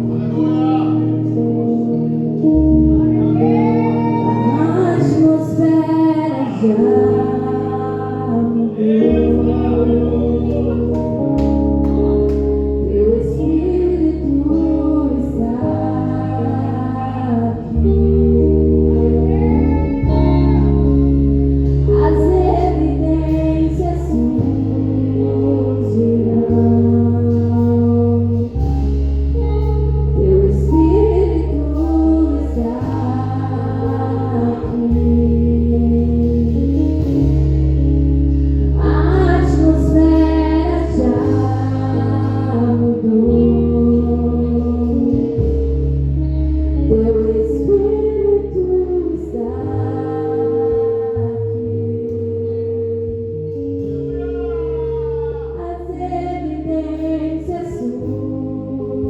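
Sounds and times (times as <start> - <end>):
bass: 0.0 - 59.0
keyboard chords: 0.0 - 59.0
woman singing worship song: 0.0 - 59.0
voices singing along: 30.6 - 37.4.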